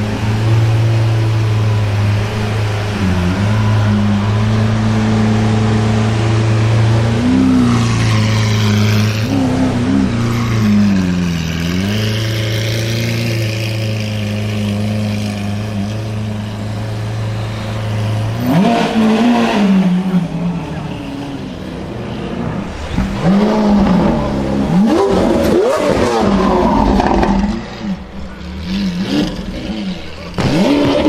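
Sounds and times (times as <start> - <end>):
sports car engine revving: 0.0 - 21.5, 22.6 - 31.0.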